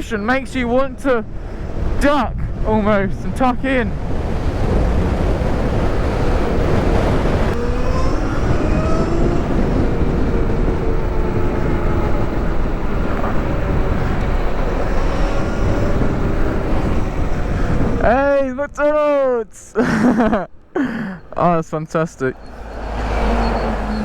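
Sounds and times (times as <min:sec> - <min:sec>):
wind rushing over microphone: 0:00.0 - 0:20.5, 0:22.2 - 0:24.0
electric motor whine: 0:04.8 - 0:18.0.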